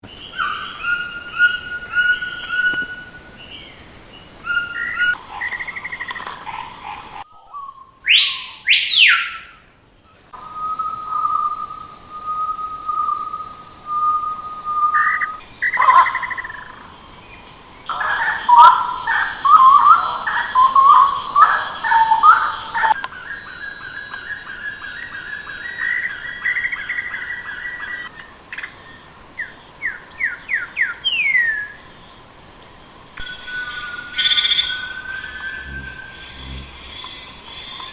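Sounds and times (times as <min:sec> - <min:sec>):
chirpy warbling birdsong: 0:00.0 - 0:09.5, 0:15.6 - 0:28.1, 0:33.2 - 0:37.9
bird calls and songs: 0:00.0 - 0:37.9
falling whistled bird notes: 0:07.4 - 0:09.5.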